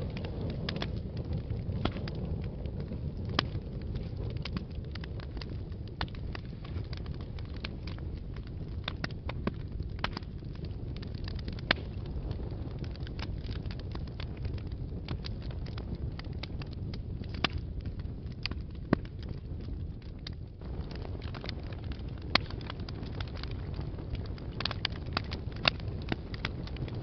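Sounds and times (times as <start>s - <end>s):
fire crackling and popping: 0.0s - 27.0s
low rumble of flames: 0.0s - 27.0s.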